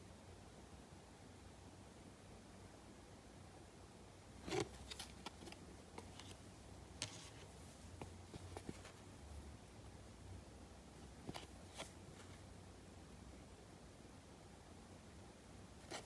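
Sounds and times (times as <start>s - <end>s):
low room hiss: 0.0s - 16.0s.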